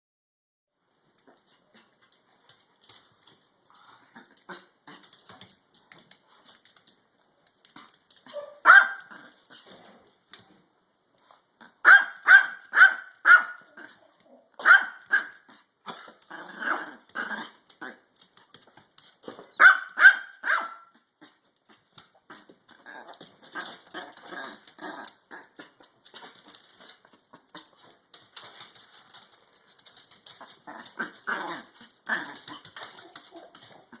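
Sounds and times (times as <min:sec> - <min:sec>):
dog barking: 0:08.4 - 0:09.2, 0:11.8 - 0:13.7, 0:14.6 - 0:15.5, 0:19.6 - 0:21.0.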